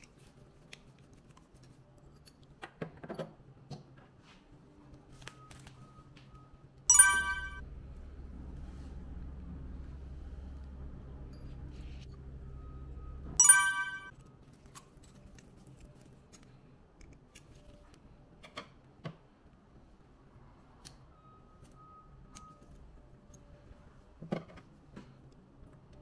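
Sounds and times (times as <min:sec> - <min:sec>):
bright ding: 0:06.9 - 0:07.6, 0:13.4 - 0:14.1.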